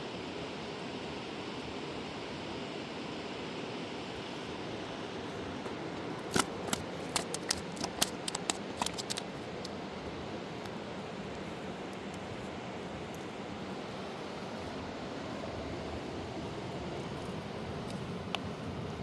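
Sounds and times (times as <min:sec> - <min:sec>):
sharp clicks: 0:06.2 - 0:09.7.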